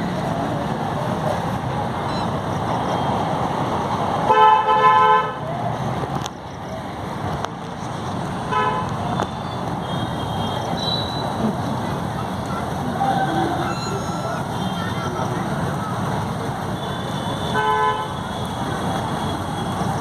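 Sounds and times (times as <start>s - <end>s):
street noise: 0.0s - 20.0s
vehicle horn honking: 16.8s - 18.3s.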